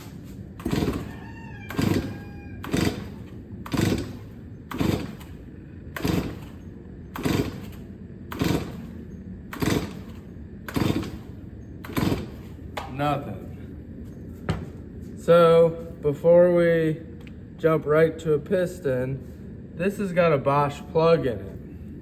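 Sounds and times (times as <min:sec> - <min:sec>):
chainsaw starter cord pulls: 0:00.6 - 0:05.4, 0:06.0 - 0:06.6, 0:07.2 - 0:08.9, 0:09.6 - 0:12.5.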